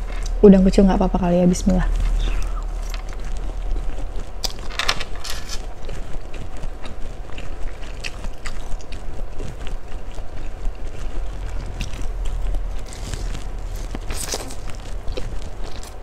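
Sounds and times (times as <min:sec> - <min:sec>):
steady low rumble: 0:00.0 - 0:16.0
wet chewing mouth clicks: 0:05.6 - 0:16.0.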